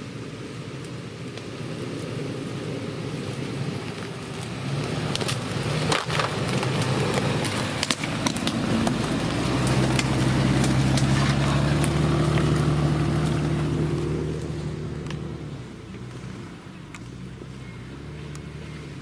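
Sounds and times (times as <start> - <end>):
suv engine under load: 1.6 - 19.0
sharp cracks and snaps: 3.9 - 13.4.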